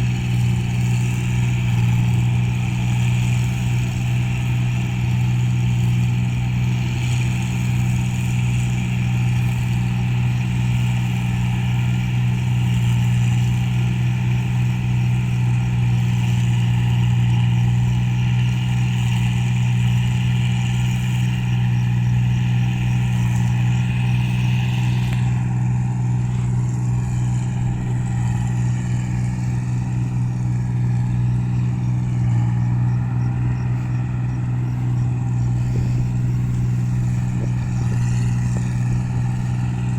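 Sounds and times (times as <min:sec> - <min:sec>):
harvester engine deep hum: 0:00.0 - 0:39.9
higher machinery noise: 0:14.0 - 0:39.9.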